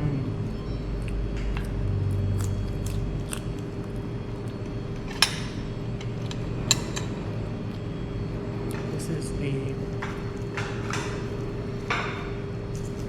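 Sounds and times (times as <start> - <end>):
low rumble and hum: 0.0 - 10.5
cutlery and dishes clicking: 5.0 - 7.2.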